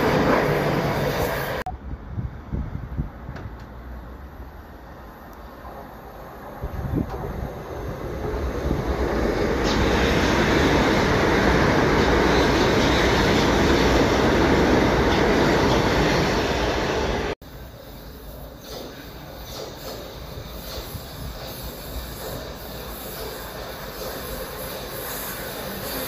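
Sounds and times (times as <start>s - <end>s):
train wheels rumbling on rails: 5.4s - 26.0s.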